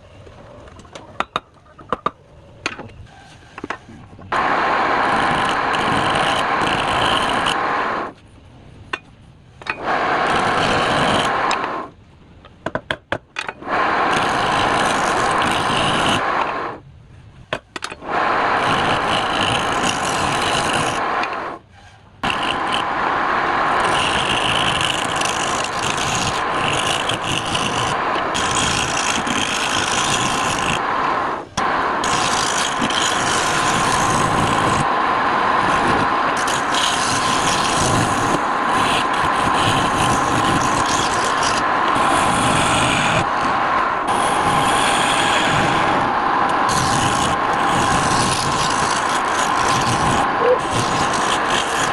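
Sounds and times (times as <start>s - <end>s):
tool scraping wood on a lathe: 5.1s - 7.6s, 9.7s - 11.8s, 14.0s - 16.6s, 17.8s - 30.8s, 31.6s - 34.9s, 35.6s - 51.9s.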